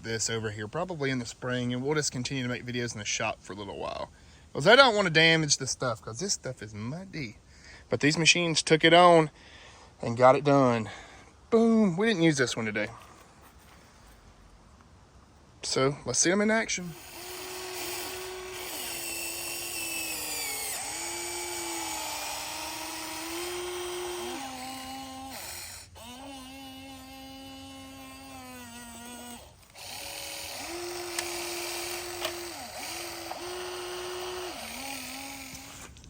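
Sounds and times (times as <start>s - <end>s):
electric motors whining: 16.8s - 36.0s.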